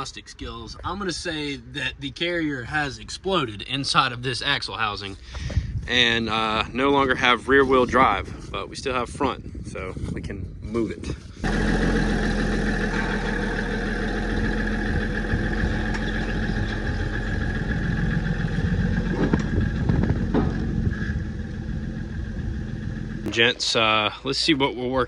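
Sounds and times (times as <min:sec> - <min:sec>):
pickup truck engine running: 0:11.4 - 0:23.4.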